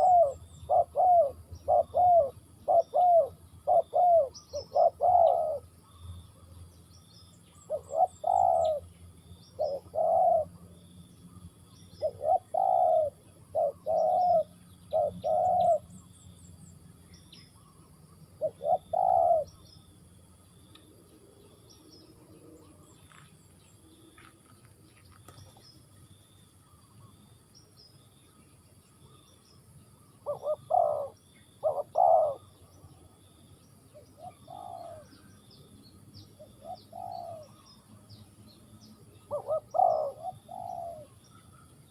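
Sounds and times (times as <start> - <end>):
dove cooing: 0.0 - 5.7, 7.7 - 8.9, 9.6 - 10.6, 12.0 - 15.9, 18.4 - 19.6, 30.2 - 32.8, 33.9 - 35.2, 36.4 - 37.7, 39.2 - 41.2
small birds chirping: 0.0 - 41.9.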